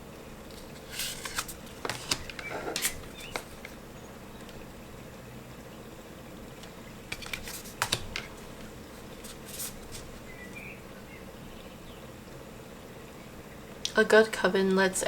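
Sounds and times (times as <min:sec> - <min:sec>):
faint room hum: 0:00.0 - 0:15.0
cards clicking and tapping: 0:00.5 - 0:03.8, 0:06.6 - 0:10.2
soft card scrapes: 0:00.8 - 0:03.5, 0:07.1 - 0:08.2, 0:09.2 - 0:10.1.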